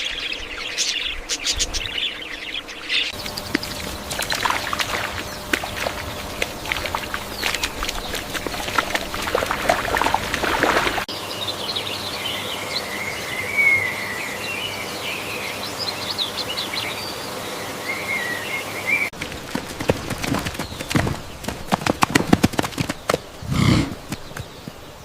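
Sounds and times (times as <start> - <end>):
small birds chirping: 0.0 - 25.0
clicking splashing noise: 3.2 - 11.0.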